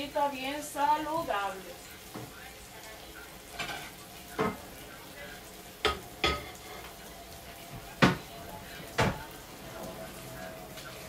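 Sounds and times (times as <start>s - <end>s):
chicken sizzling on a griddle: 0.0s - 11.0s
kitchenware clacks: 5.8s - 6.9s.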